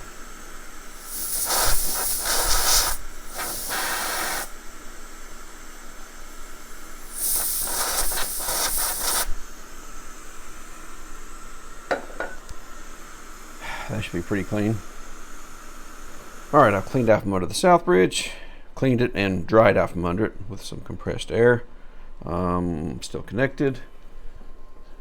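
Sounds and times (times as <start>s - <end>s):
compressed air hissing bursts: 0.0s - 17.2s.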